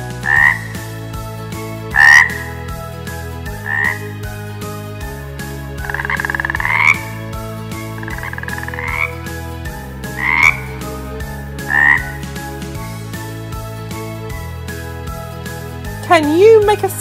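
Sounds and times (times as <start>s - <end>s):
frog croaking trills: 0.2s - 0.8s, 1.9s - 2.6s, 3.6s - 4.1s, 5.8s - 9.4s, 10.0s - 11.0s, 11.6s - 12.3s.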